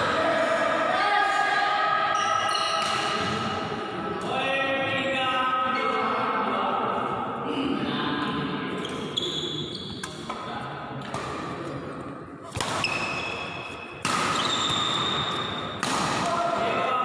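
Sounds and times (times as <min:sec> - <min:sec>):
rackets hitting shuttlecock: 0:02.8 - 0:03.5, 0:10.0 - 0:16.6
shoe squeaks: 0:08.8 - 0:10.1, 0:12.8 - 0:15.3.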